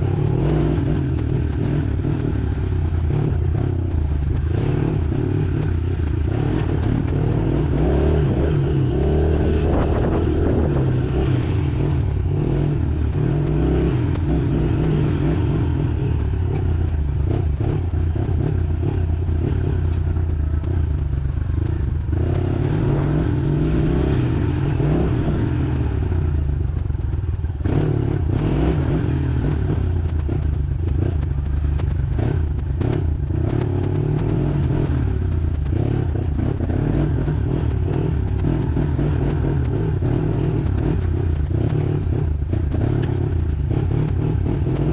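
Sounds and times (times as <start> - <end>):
motorbike engine running: 0.0 - 44.9
clatters and knocks: 24.7 - 44.9.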